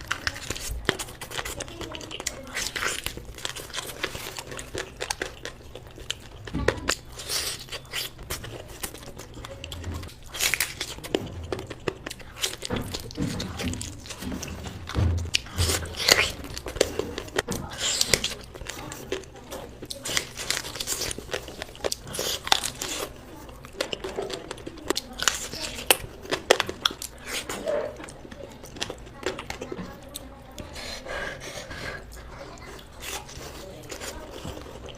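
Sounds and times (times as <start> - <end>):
person chewing with crunches: 0.0 - 34.9.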